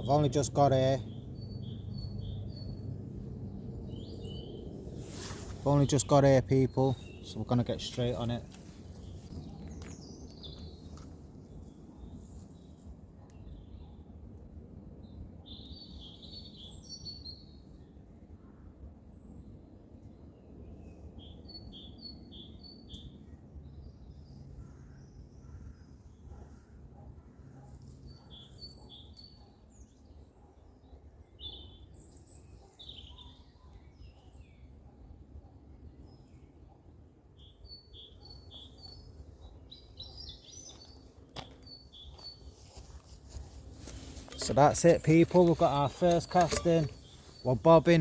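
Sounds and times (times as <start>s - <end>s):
songbirds chirping: 0.0s - 48.0s
small bird chirping: 1.0s - 2.9s, 37.4s - 48.0s.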